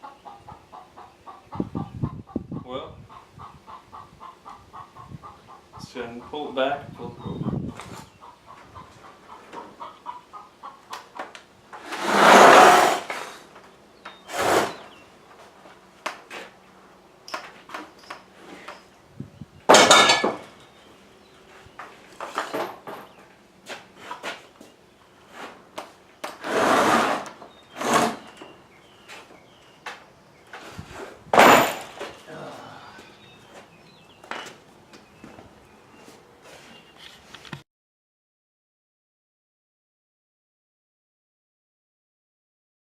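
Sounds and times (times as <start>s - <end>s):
scraping and rustling: 11.8s - 13.6s, 14.2s - 16.6s, 26.3s - 29.3s.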